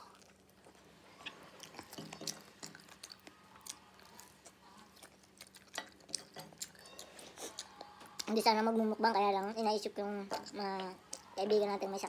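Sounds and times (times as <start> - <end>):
person chewing: 0.0 - 8.4.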